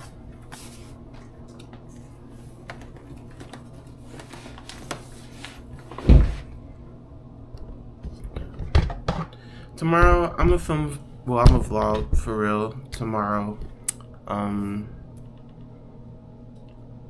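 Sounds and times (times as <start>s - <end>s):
steady low hum: 0.0s - 17.0s
heavy thump: 11.4s - 12.2s.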